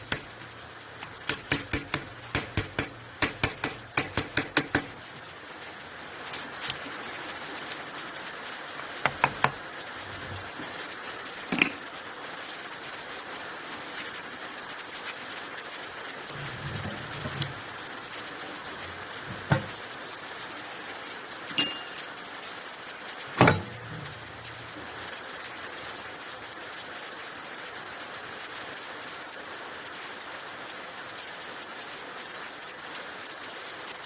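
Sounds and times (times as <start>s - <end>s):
steady hiss: 0.0s - 34.0s
metal tools clinking: 21.5s - 22.2s
sharp metallic strikes: 21.6s - 22.1s.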